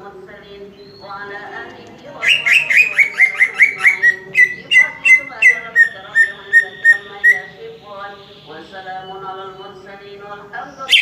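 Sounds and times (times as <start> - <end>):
bird singing sharp notes: 2.2 - 7.5.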